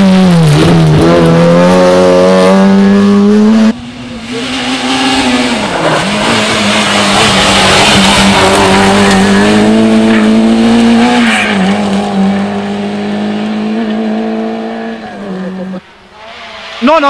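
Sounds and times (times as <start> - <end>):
rally car engine at high revs: 0.0 - 17.0.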